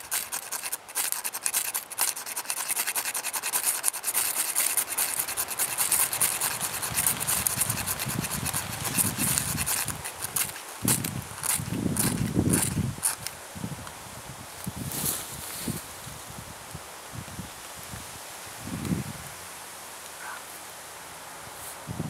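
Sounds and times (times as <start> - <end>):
knife scraping wooden stick: 0.0 - 13.4.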